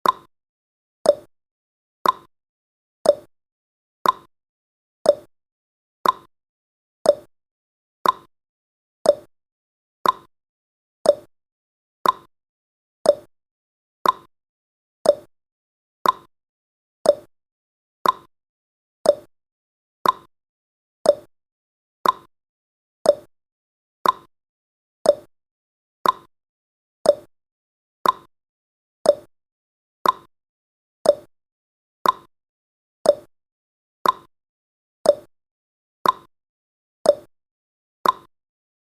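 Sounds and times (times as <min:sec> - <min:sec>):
clock ticking: 0:02.0 - 0:02.3, 0:04.0 - 0:04.3, 0:06.0 - 0:06.3, 0:08.0 - 0:08.3, 0:10.0 - 0:10.3, 0:12.0 - 0:12.3, 0:14.0 - 0:14.3, 0:15.1 - 0:15.3, 0:16.0 - 0:16.3, 0:18.0 - 0:18.3, 0:19.1 - 0:19.3, 0:20.0 - 0:20.3, 0:21.1 - 0:21.3, 0:22.0 - 0:22.3, 0:24.0 - 0:24.3, 0:26.0 - 0:26.3, 0:28.0 - 0:28.3, 0:29.1 - 0:29.3, 0:30.0 - 0:30.3, 0:31.1 - 0:31.3, 0:32.0 - 0:32.3, 0:33.1 - 0:33.3, 0:34.0 - 0:34.3, 0:35.1 - 0:35.3, 0:36.0 - 0:36.3, 0:38.0 - 0:38.3.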